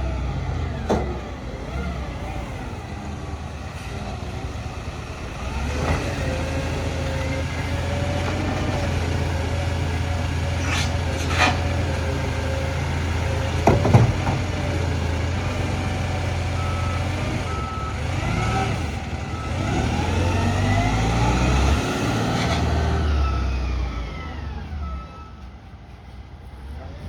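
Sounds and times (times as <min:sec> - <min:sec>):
garbage truck engine running: 0:00.0 - 0:27.0
reversing alarm beeping: 0:16.5 - 0:21.8, 0:23.1 - 0:25.9.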